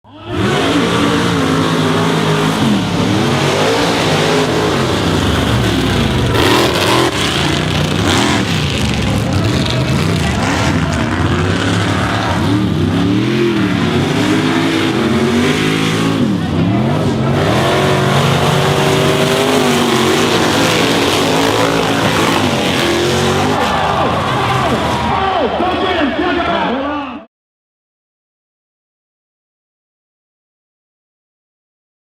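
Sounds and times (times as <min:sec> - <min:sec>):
truck engine revving: 0:00.1 - 0:25.4.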